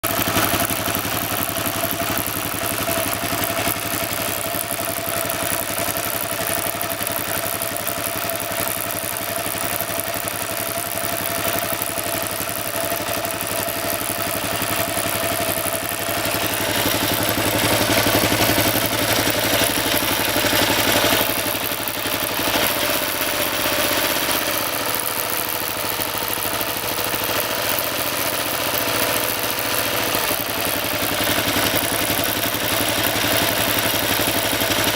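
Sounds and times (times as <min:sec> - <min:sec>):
drive chain and sprocket noise: 0:00.0 - 0:34.9
motorcycle engine running: 0:00.0 - 0:34.9.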